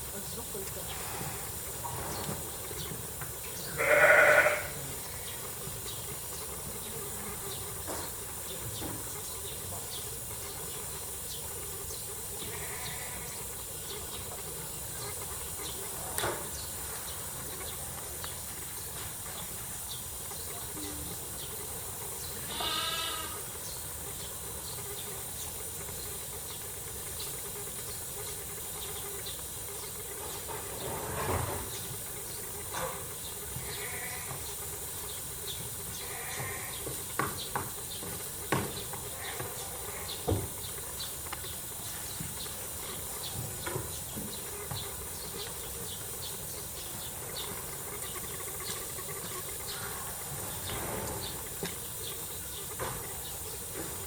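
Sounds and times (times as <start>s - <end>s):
steady background hiss: 0.0s - 54.0s
farm animal bleating: 3.6s - 5.6s, 12.4s - 13.5s, 22.4s - 23.6s, 33.6s - 34.5s, 35.9s - 37.0s, 39.0s - 40.4s.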